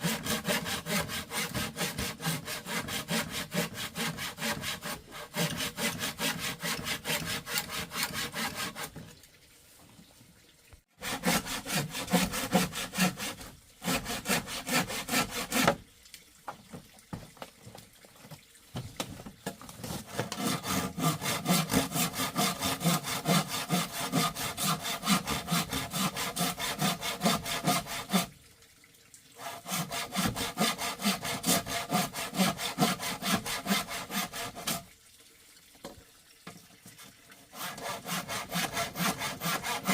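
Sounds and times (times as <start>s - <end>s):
hand saw cutting wood: 0.0s - 9.1s, 11.0s - 15.8s, 19.8s - 28.3s, 29.4s - 34.9s, 37.4s - 39.9s.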